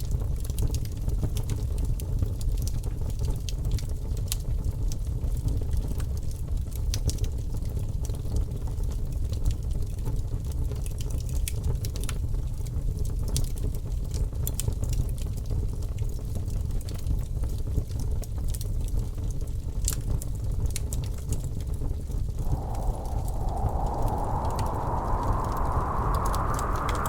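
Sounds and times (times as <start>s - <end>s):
high hissing sound: 22.4s - 27.0s.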